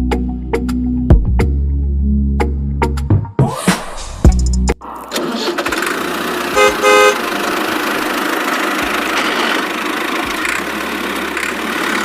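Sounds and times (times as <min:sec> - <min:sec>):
mini tractor engine running: 0:04.9 - 0:12.0
horn toots: 0:06.5 - 0:07.3.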